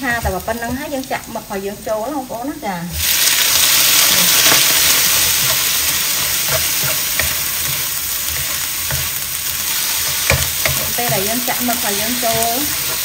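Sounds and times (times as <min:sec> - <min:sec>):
food sizzling in hot oil: 0:00.0 - 0:13.0
spatula scraping and tapping pan: 0:04.2 - 0:13.0.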